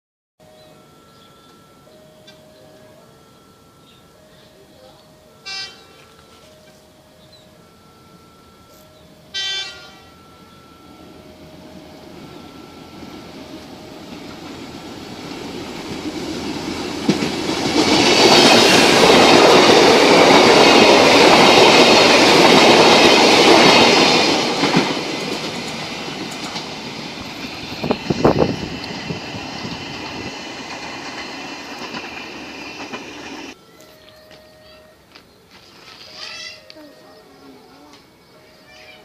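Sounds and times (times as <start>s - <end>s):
train wheels rumbling on rail: 9.4s - 33.6s.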